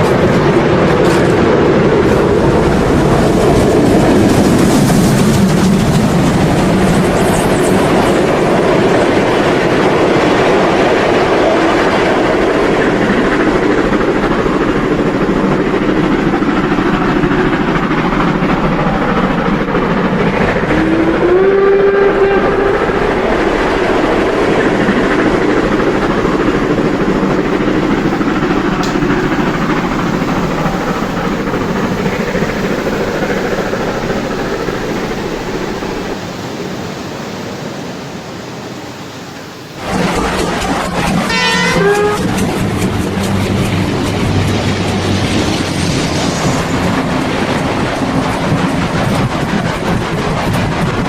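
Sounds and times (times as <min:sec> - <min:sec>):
short steam whistle: 0:20.7 - 0:23.0, 0:41.3 - 0:42.4
model train clattering on track: 0:22.9 - 0:36.1.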